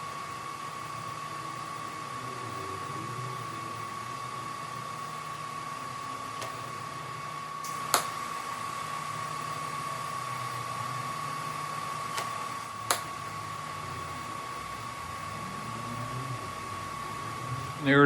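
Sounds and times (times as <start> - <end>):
machine hum with high whine: 0.0 - 18.0
sharp clicks: 12.2 - 13.1.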